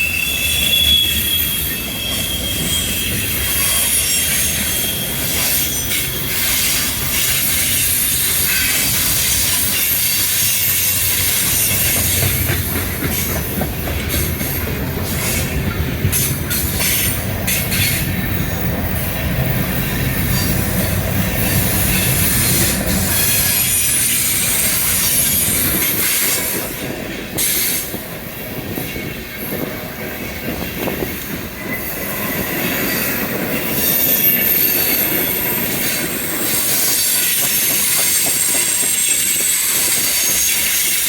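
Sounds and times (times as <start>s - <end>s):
freight train rolling past: 0.0s - 41.0s
wheels squealing on rails: 0.0s - 41.0s
wheels clicking over rail joints: 3.2s - 34.2s.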